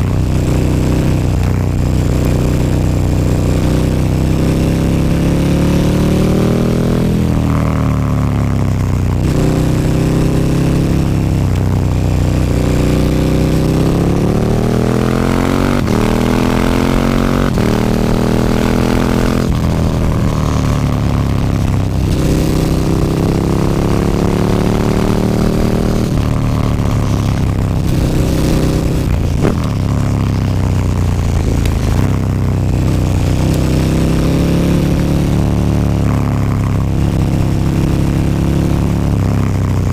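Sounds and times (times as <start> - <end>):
motorcycle engine revving: 0.0 - 39.9
exhaust cracks: 24.9 - 33.6.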